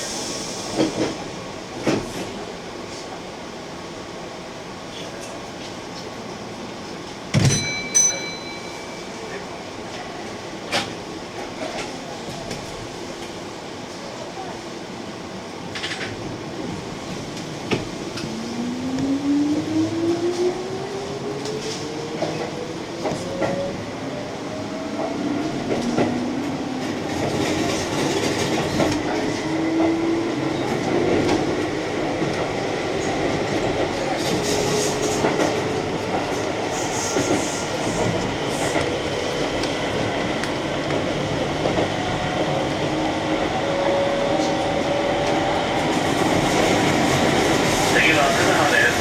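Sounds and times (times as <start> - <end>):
train wheels rumbling: 15.6 - 49.0
rail joint clicks: 15.7 - 16.2, 30.6 - 42.0.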